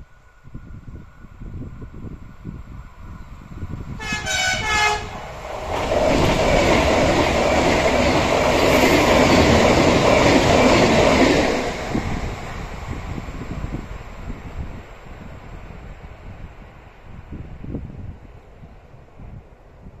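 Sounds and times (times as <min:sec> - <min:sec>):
rushing air: 0:00.0 - 0:20.0
train wheels on track: 0:00.4 - 0:20.0
train horn: 0:04.0 - 0:05.3.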